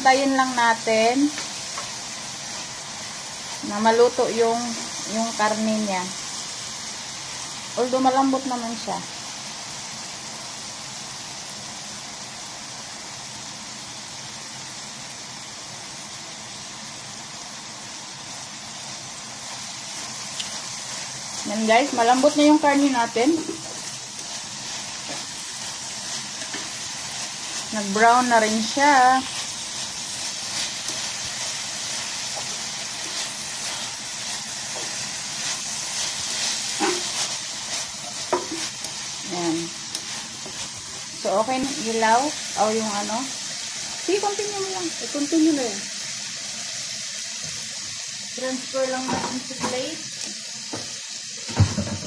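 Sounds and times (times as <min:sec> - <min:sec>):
meat sizzling in a frying pan: 0:00.0 - 0:52.0
utensil tapping and scraping pan: 0:36.8 - 0:37.2, 0:38.2 - 0:38.8.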